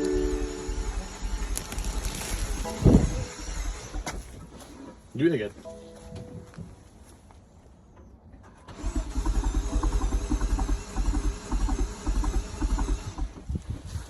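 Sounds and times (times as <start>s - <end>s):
starter motor cranking engine: 0.0s - 5.0s, 8.4s - 14.0s.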